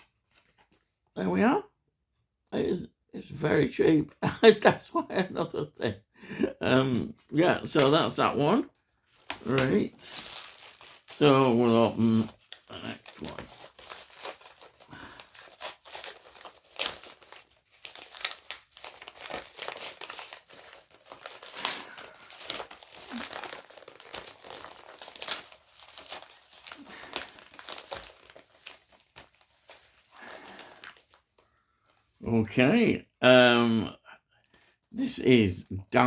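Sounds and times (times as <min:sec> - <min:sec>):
plastic packaging crinkling: 0:09.0 - 0:32.0.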